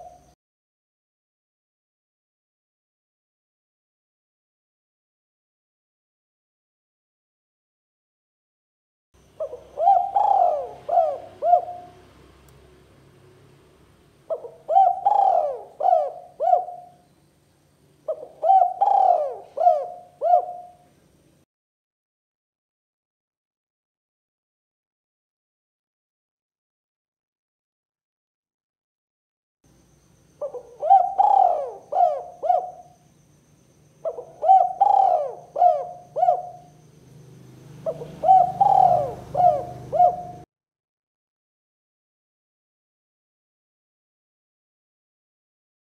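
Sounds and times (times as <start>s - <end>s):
dove cooing: 0.0s - 0.3s, 9.4s - 12.2s, 14.3s - 17.0s, 18.0s - 20.9s, 30.4s - 33.0s, 34.0s - 36.9s, 37.6s - 40.5s.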